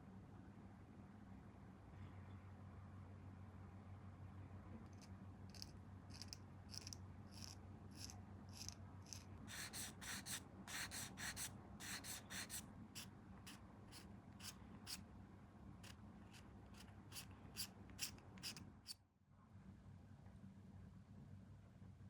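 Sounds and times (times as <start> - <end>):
steady low hum: 0.0 - 22.0
rubbing strokes on plastic part: 5.5 - 15.0, 15.8 - 18.6.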